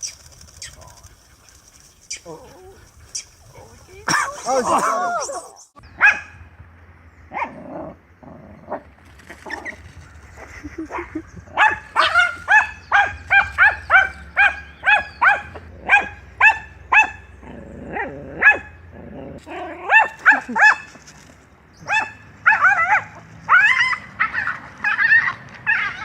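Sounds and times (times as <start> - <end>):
animal yapping: 11.6 - 17.2, 21.8 - 26.0.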